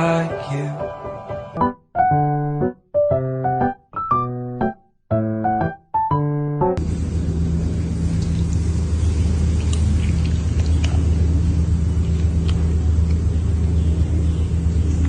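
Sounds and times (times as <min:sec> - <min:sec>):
piano tune: 0:00.0 - 0:07.1
constant low hum: 0:06.8 - 0:15.0
steady low rumble: 0:06.8 - 0:15.0.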